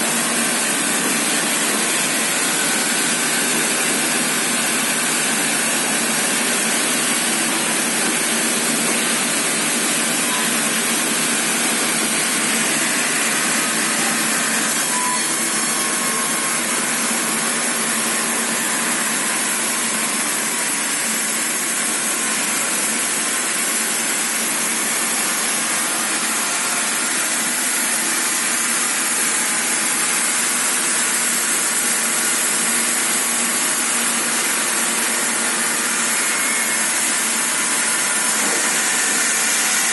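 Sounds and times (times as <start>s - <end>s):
sawmill sawing wood: 0.0s - 39.9s.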